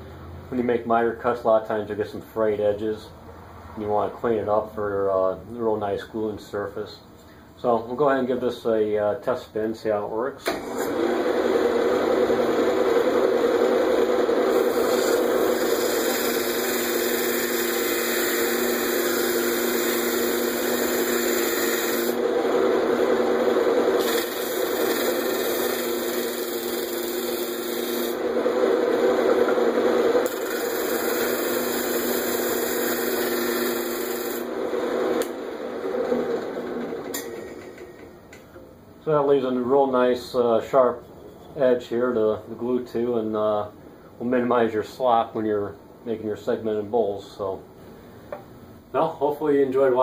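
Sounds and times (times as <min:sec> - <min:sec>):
lathe motor hum: 0:10.7 - 0:37.4.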